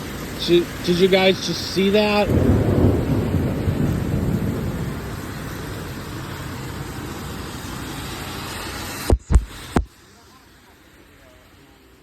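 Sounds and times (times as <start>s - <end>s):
heavy rain hissing: 0.0s - 12.0s
rolling thunder: 0.7s - 8.4s.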